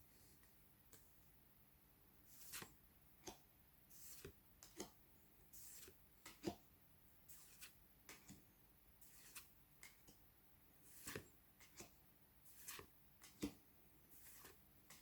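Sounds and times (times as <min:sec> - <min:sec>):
trading cards swishing and tapping: 0:10.9 - 0:15.0.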